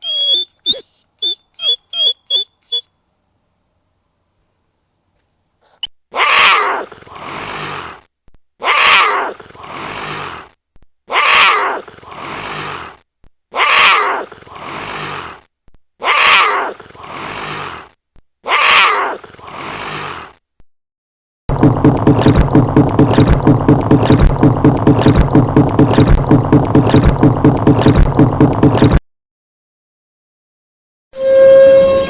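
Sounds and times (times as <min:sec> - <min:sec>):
harsh animal call: 0:05.7 - 0:20.4.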